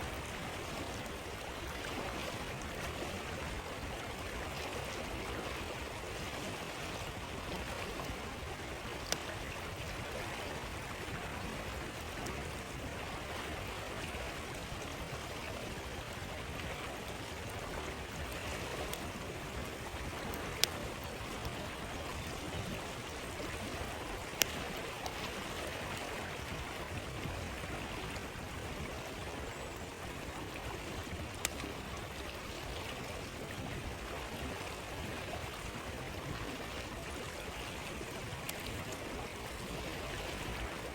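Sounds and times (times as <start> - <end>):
stream flowing: 0.0 - 40.9
campfire crackling pops: 8.8 - 9.4, 18.2 - 26.0, 31.2 - 31.8.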